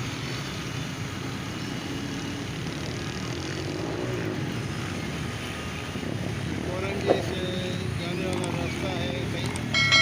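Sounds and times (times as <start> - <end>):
vehicle engines rumbling: 0.0 - 10.0.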